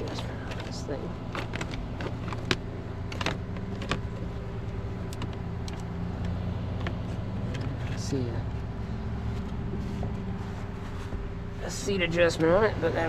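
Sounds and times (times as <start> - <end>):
sharp clicks and knocks: 0.0 - 8.0
truck engine idling: 0.0 - 13.0.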